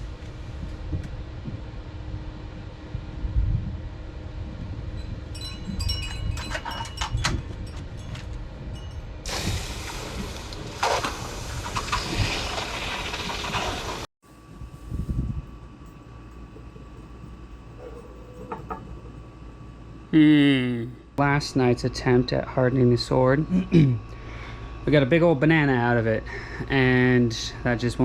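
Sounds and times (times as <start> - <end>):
hissing sizzle of boiling water: 9.3 - 14.9.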